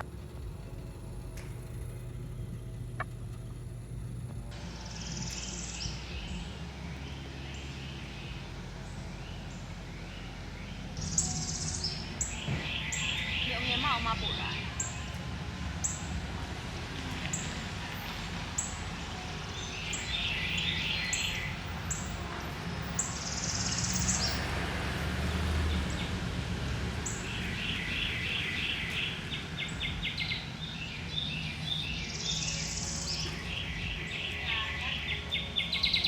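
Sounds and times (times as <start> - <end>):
low rumble: 0.0 - 23.8
birds chirping trills: 0.0 - 36.0.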